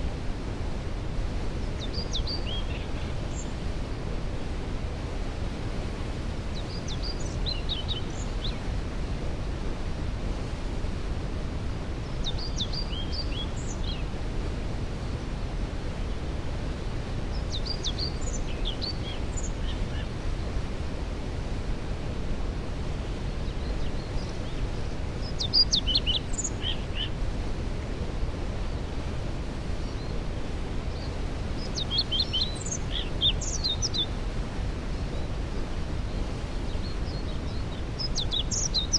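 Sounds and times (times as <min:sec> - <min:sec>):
songbirds singing: 0:01.5 - 0:04.0, 0:06.4 - 0:08.7, 0:11.7 - 0:14.1, 0:17.3 - 0:20.7, 0:22.9 - 0:27.2, 0:28.5 - 0:38.9.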